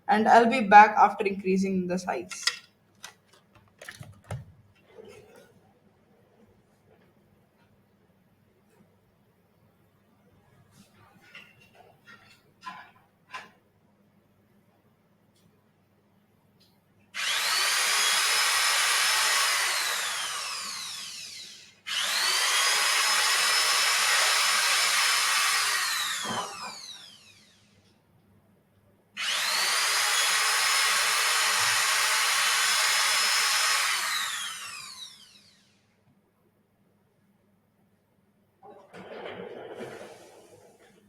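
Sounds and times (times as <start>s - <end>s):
high-speed power tool drilling: 17.2s - 27.7s, 29.2s - 35.8s.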